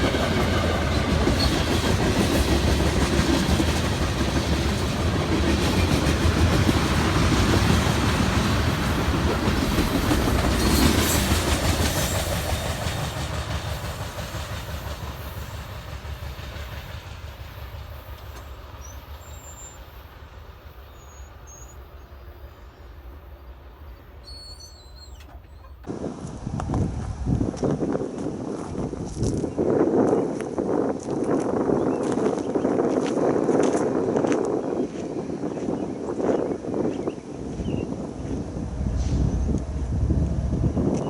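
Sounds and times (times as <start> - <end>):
train wheels clattering over rail joints: 0.0 - 19.5.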